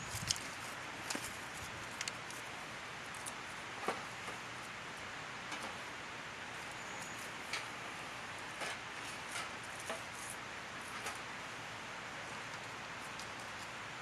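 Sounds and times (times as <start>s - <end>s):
clicks and rustles of handling: 0.0s - 4.7s, 8.4s - 11.3s, 12.4s - 13.8s
steady background hiss: 0.0s - 14.0s.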